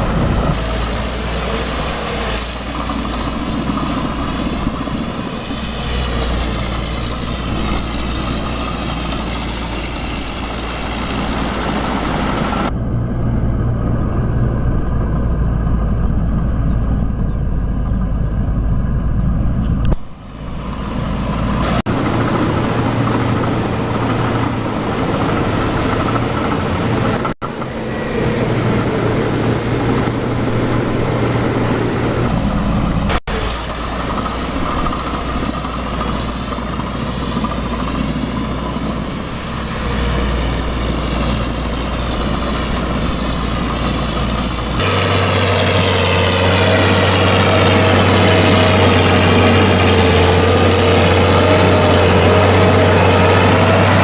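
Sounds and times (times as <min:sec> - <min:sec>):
tractor engines running: 0:00.0 - 0:54.0.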